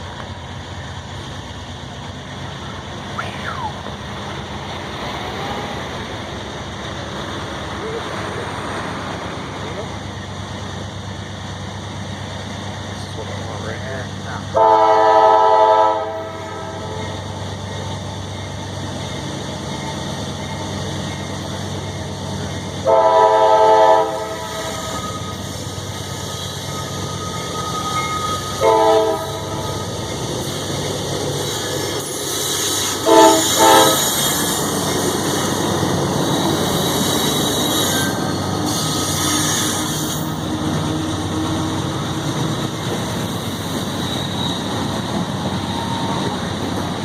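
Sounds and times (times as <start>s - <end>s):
train rumbling: 0.0s - 47.0s
train wheel noise: 0.0s - 47.0s
locomotive air horn blasts: 14.5s - 17.0s, 22.8s - 25.2s, 28.3s - 29.9s, 33.0s - 34.1s.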